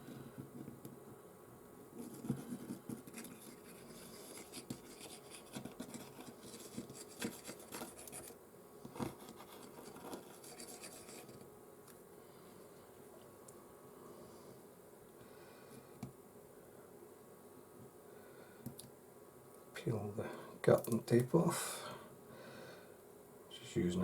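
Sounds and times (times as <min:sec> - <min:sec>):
scratching and rubbing on phone: 0:02.0 - 0:11.4.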